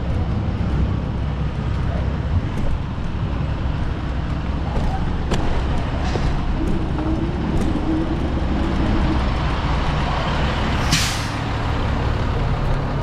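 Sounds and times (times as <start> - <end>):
heavy vehicle nearby: 0.0 - 13.0
street traffic rumble: 0.0 - 13.0
air brakes hiss: 10.8 - 11.5.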